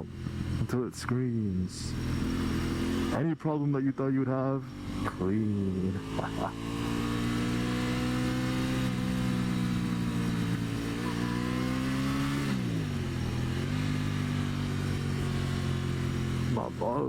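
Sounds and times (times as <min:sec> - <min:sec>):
motorcycle engine at high revs: 0:00.0 - 0:17.0.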